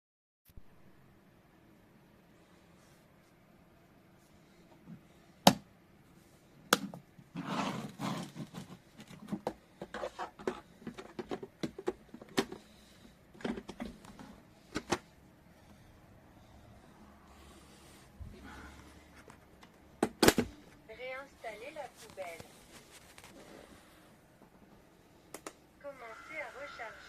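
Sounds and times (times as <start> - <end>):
handling knocks and clicks: 8.3 - 12.7
rustling: 21.1 - 24.8.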